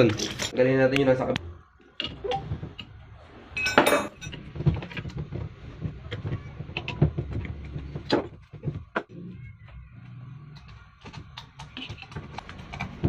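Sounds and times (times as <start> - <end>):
metal tools clinking: 3.6 - 4.4.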